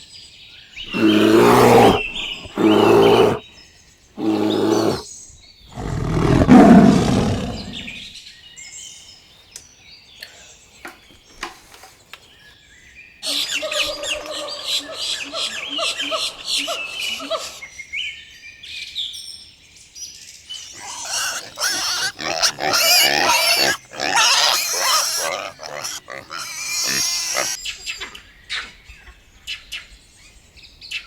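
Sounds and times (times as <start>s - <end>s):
animal calls: 0.9s - 3.4s, 4.2s - 5.0s, 5.8s - 8.0s, 20.7s - 27.6s
chirping: 0.9s - 3.4s, 4.2s - 5.0s, 20.8s - 27.6s.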